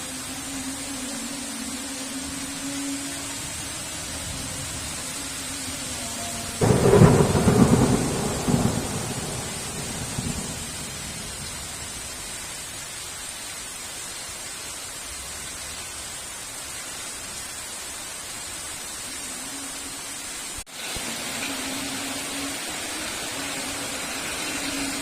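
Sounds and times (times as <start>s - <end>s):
heavy rain: 0.0s - 25.0s
thunderclap rumbling: 6.6s - 12.1s.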